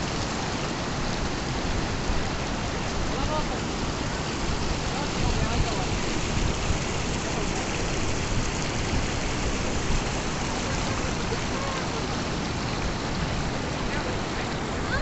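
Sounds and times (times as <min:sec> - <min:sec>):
rushing stream water: 0:00.0 - 0:15.0.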